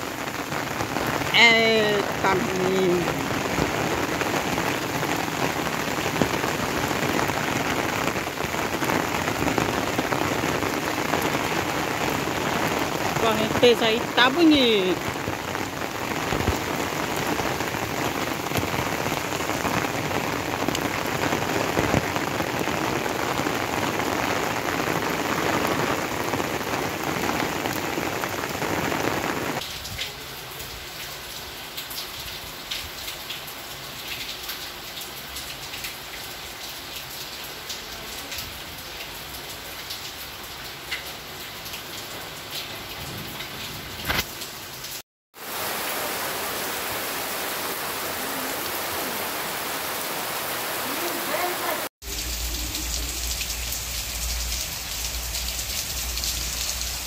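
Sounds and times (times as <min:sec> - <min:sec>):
heavy rain hissing: 0:00.0 - 0:30.5, 0:45.4 - 0:57.0
water dripping: 0:31.0 - 0:44.4, 0:52.0 - 0:57.0.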